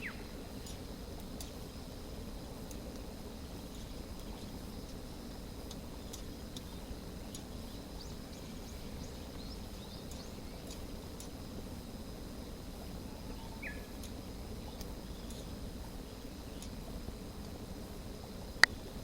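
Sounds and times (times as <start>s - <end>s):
bird chirps: 7.7s - 10.8s, 13.0s - 14.0s.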